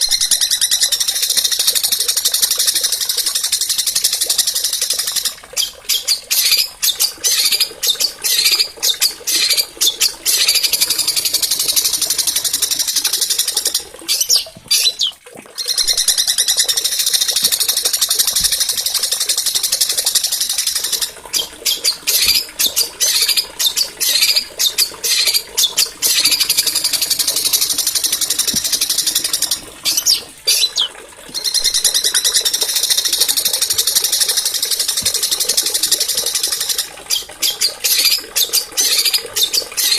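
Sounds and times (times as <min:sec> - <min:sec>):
songbird trilling: 0:06.0 - 0:11.9, 0:20.8 - 0:33.6.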